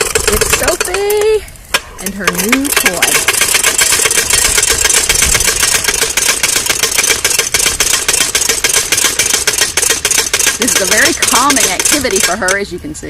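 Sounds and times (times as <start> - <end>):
rapid even clatter: 0.0 - 12.7.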